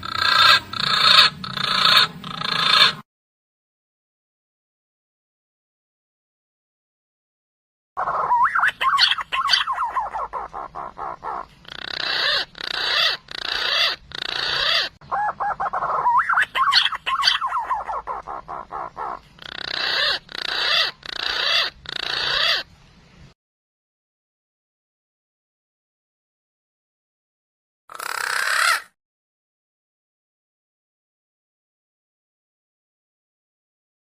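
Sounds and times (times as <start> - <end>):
pigeon whistling song: 8.0 - 22.7.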